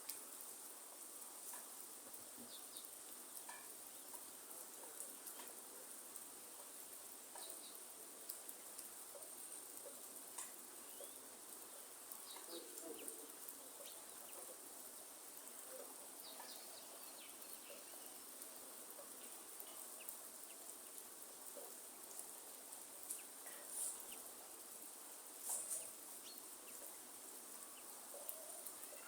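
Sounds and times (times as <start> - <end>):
light rain hiss: 0.0 - 29.0.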